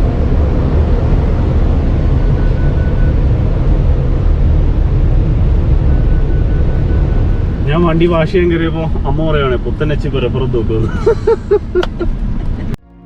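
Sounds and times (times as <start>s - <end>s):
car wash air dryer blowing: 6.4s - 12.8s.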